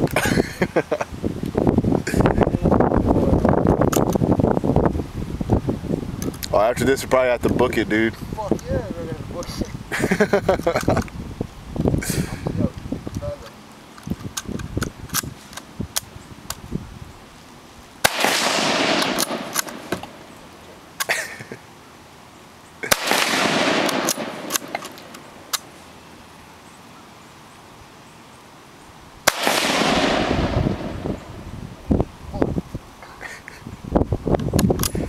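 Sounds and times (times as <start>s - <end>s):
gunshots echoing: 18.0s - 20.3s, 22.8s - 25.7s, 29.2s - 31.1s.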